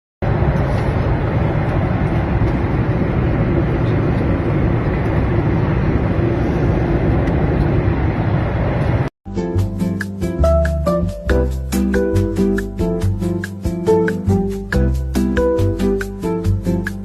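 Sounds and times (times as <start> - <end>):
jet cabin rumble: 0.2 - 9.1.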